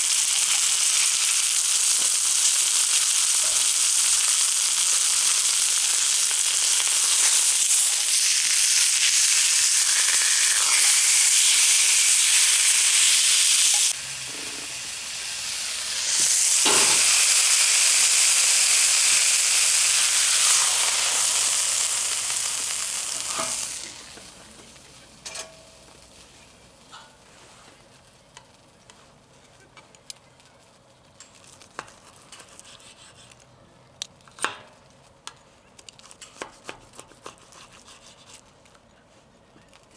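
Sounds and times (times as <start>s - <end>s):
steak sizzling on griddle: 0.0s - 26.7s.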